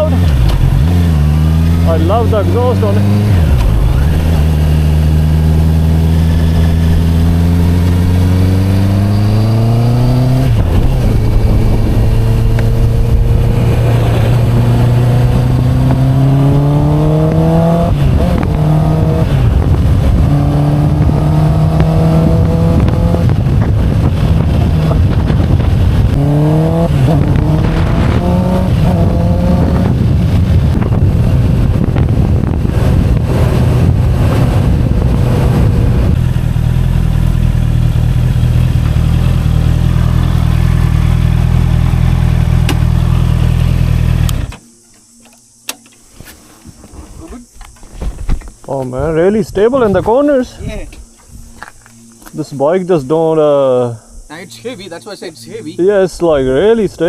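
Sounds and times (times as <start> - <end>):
motorcycle revving through gears: 0.0 - 44.6.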